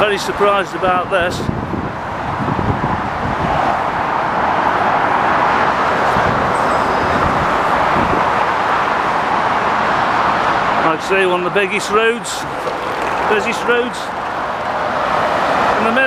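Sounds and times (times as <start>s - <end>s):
dense motorway traffic rushing: 0.0s - 16.0s.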